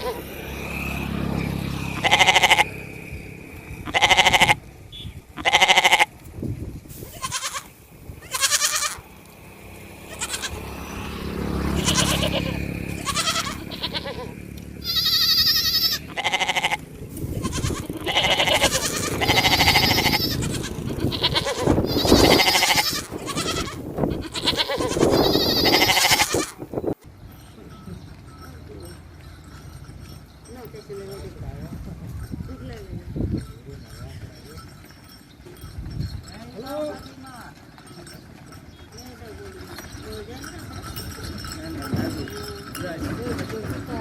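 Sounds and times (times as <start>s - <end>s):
sheep and goats bleating: 0.0s - 2.9s, 3.5s - 4.7s, 5.3s - 6.3s, 6.9s - 26.8s.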